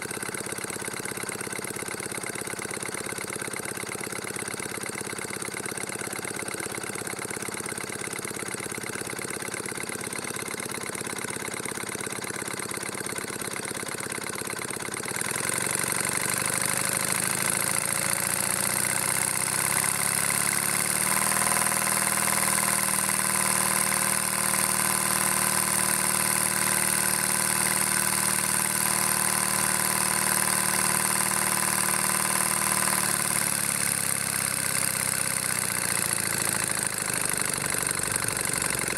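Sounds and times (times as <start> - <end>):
steam engine cylinders chuffing: 22.6 - 38.9.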